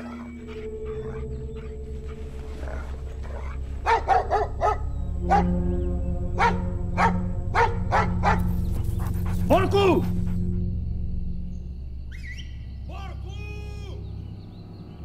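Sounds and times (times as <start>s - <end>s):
low musical drone: 0.0s - 15.0s
dog barking: 2.6s - 5.6s, 6.4s - 10.4s.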